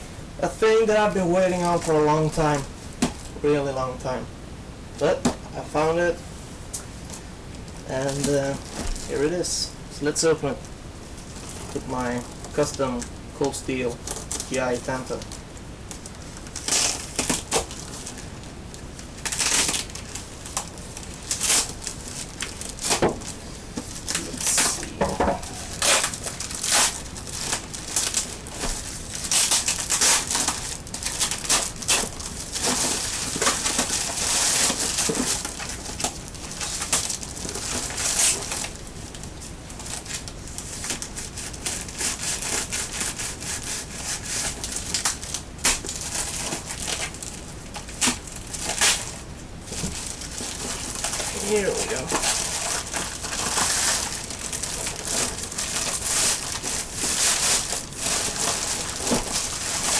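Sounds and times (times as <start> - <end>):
cardboard tearing and crinkling: 16.0 - 18.3, 19.2 - 59.9.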